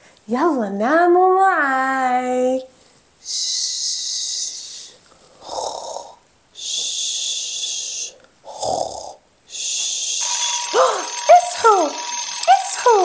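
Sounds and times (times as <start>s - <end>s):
person pretend snoring: 5.2s - 10.2s.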